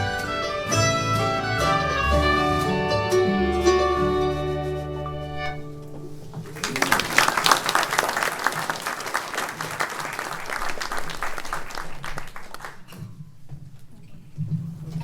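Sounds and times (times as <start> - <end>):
acoustic string ensemble: 0.0 - 13.0
audience applauding: 6.4 - 13.0.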